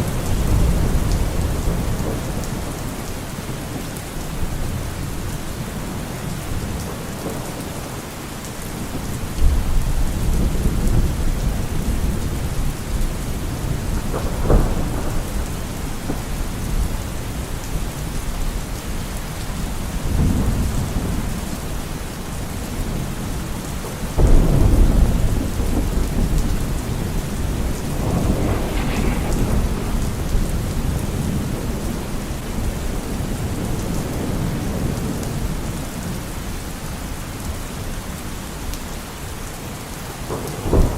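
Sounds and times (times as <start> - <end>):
heavy rain: 0.0 - 40.9
thunder rolling: 8.8 - 18.4, 24.2 - 35.0.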